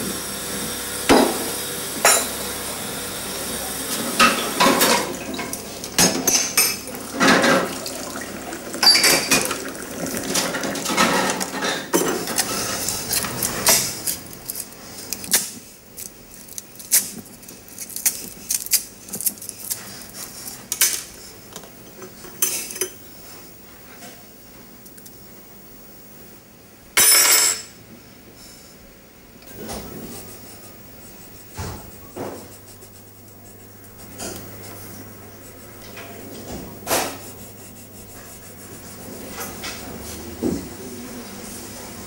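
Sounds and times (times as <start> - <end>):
crockery and cutlery clinking: 4.1 - 12.6.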